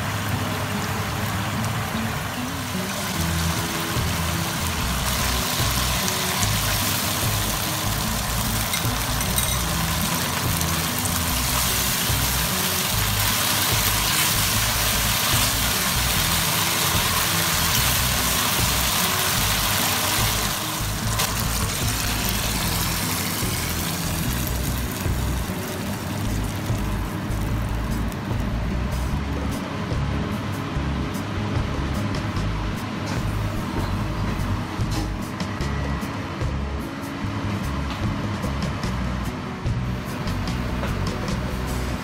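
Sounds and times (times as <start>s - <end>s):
sauce sizzling in a wok: 0.0s - 29.2s
music with low bass line: 0.0s - 42.0s.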